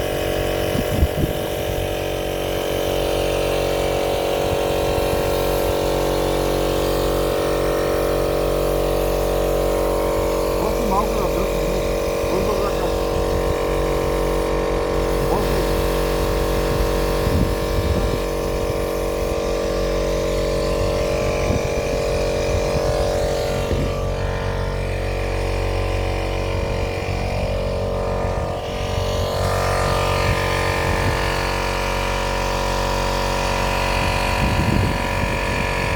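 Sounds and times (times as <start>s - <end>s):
motor running: 0.0s - 35.9s.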